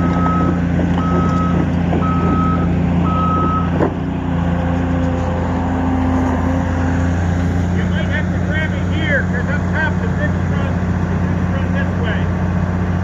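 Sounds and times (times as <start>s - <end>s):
backup alarm beeping: 0.0s - 3.8s
diesel engine running: 0.0s - 13.0s.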